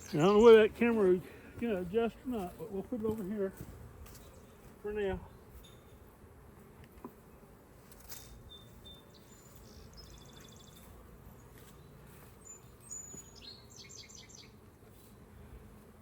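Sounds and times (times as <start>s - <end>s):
small bird singing: 0.0s - 1.0s, 8.4s - 14.6s
honeybees buzzing: 0.0s - 16.0s.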